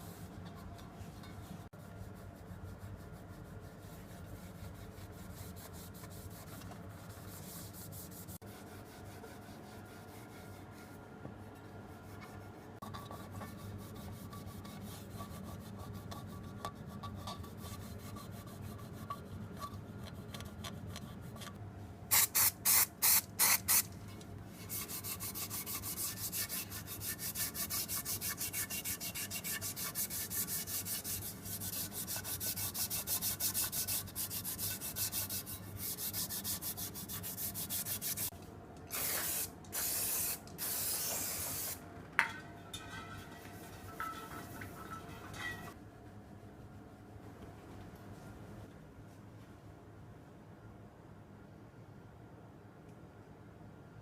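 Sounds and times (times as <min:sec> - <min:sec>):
short hissing bursts: 0:22.1 - 0:23.9, 0:38.9 - 0:41.8
rapid rubbing strokes: 0:24.6 - 0:38.3.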